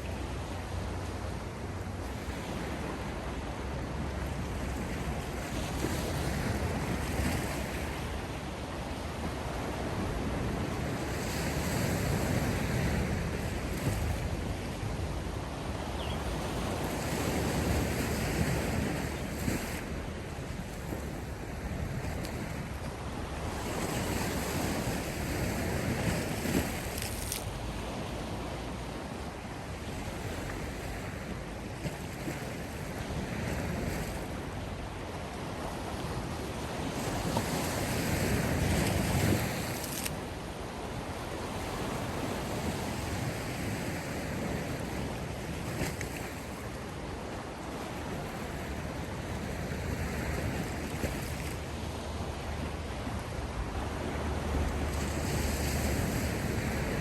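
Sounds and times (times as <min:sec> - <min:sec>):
sea waves surging: 0:00.0 - 0:57.0.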